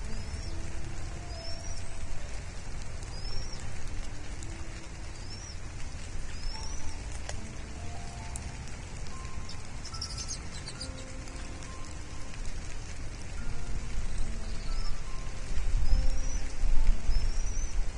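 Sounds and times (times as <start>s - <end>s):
bird chirping: 0.0s - 2.2s, 3.0s - 3.8s, 4.8s - 7.7s, 9.1s - 11.9s, 14.1s - 17.8s
steady rain: 0.0s - 17.9s
sharp tick: 6.3s - 7.4s.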